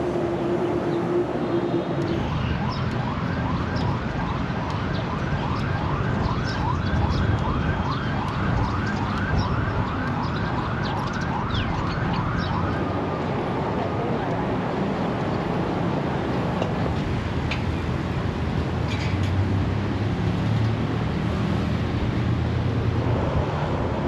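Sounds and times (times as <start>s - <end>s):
city traffic rumble: 0.0s - 24.0s.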